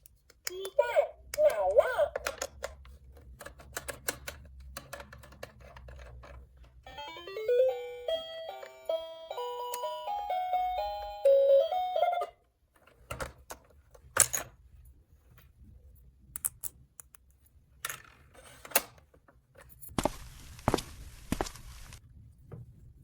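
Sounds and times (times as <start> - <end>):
electronic toy melody beeping: 6.9 - 12.4
plastic toy pieces clicking: 16.4 - 17.3.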